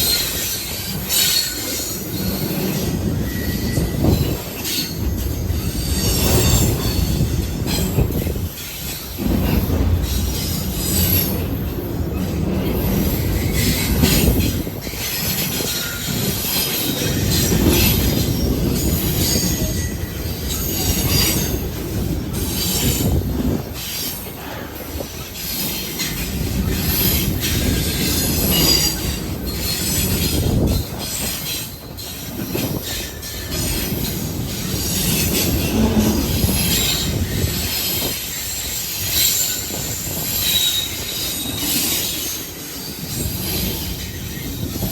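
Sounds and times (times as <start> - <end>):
train rolling past rumbling: 0.0 - 44.9
wheels squealing on rails: 0.0 - 44.9.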